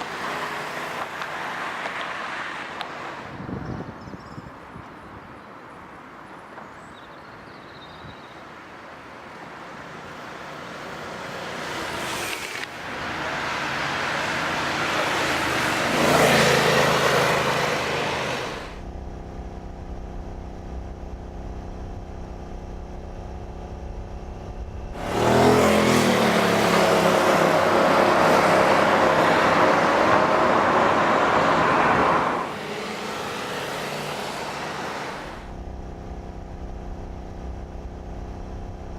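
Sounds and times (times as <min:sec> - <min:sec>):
car engine accelerating: 0:13.3 - 0:38.9.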